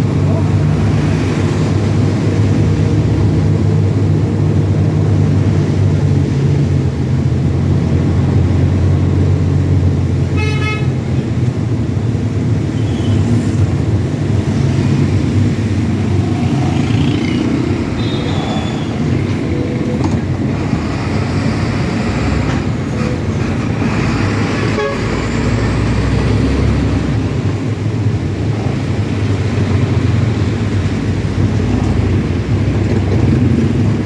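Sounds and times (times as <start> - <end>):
heavy truck engine drone: 0.0 - 34.0
road noise: 0.0 - 34.0
truck horn toot: 10.3 - 11.0, 17.9 - 19.0, 24.6 - 25.4.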